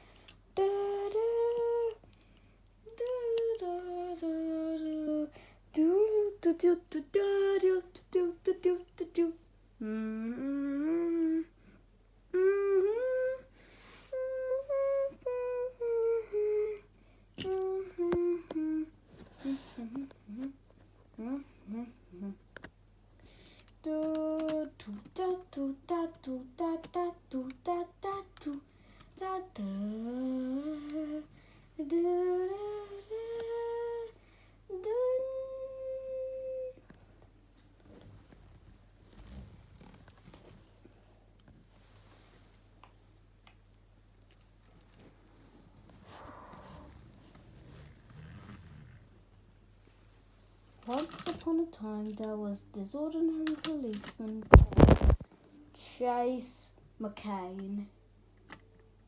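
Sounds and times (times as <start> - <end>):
child humming: 9.2 - 11.5, 12.3 - 13.5, 14.1 - 16.9, 29.2 - 34.1.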